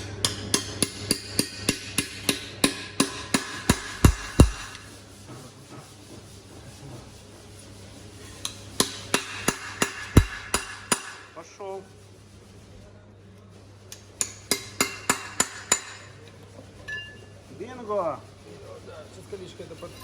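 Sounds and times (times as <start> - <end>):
hammer striking metal: 0.0 - 4.8, 8.8 - 11.3, 14.2 - 16.1.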